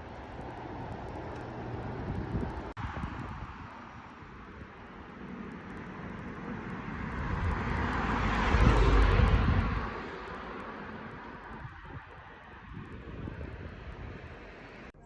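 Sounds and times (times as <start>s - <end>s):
vehicle passing by: 6.7s - 14.9s.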